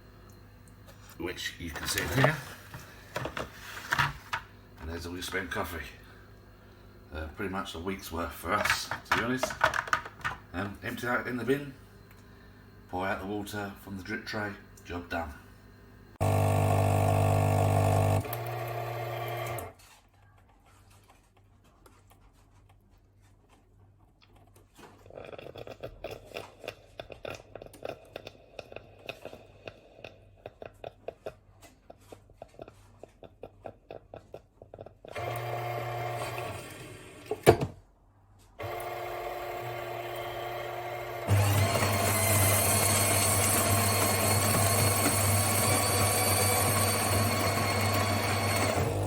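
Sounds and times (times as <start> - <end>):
coffee machine buzzing: 1.0 - 5.8, 16.2 - 19.8, 35.1 - 37.4, 38.6 - 49.0.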